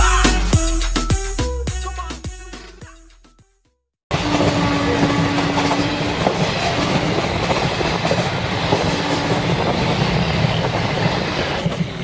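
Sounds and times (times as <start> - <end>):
train rumbling on rails: 4.1 - 12.0
train wheels clattering: 4.2 - 12.0.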